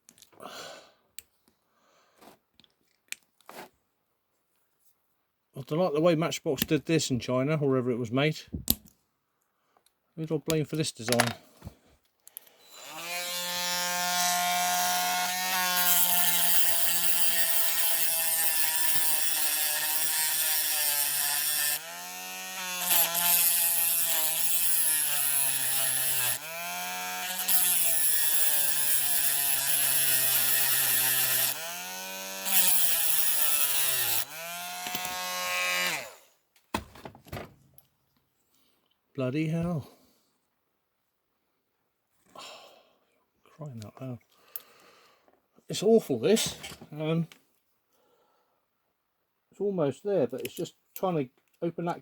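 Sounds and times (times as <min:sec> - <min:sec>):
handheld power tool cutting metal: 0:12.4 - 0:36.3.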